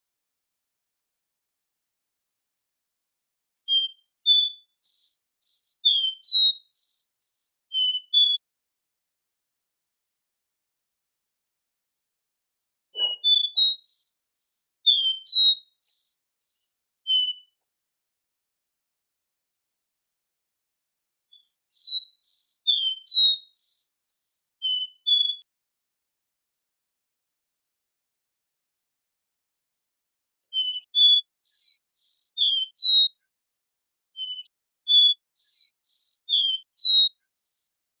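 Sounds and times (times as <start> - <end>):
bird singing whistled notes: 3.6 - 8.4, 13.0 - 17.6, 21.3 - 25.5, 30.5 - 33.4, 34.2 - 37.9.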